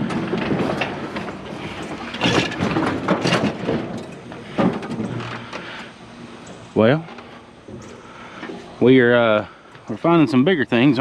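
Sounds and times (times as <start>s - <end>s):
sharp knocks and rattles: 0.0s - 5.7s
scrap metal clanking and scraping: 0.0s - 6.0s.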